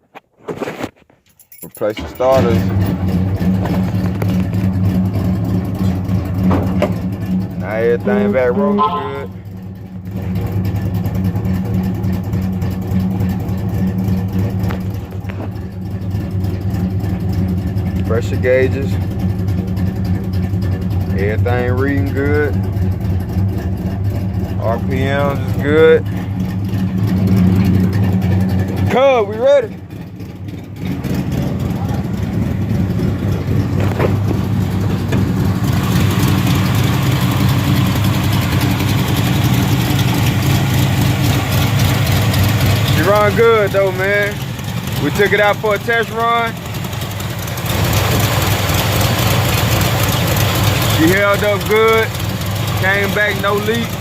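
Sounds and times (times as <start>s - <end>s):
engine running steadily: 1.3s - 54.0s.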